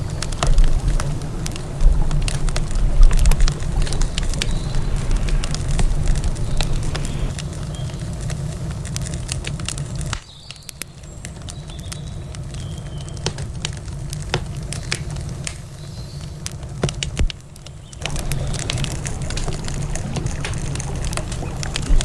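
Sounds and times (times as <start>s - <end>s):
low steady rumble: 0.0s - 8.8s, 18.0s - 22.0s
wood campfire crackling: 0.0s - 22.0s.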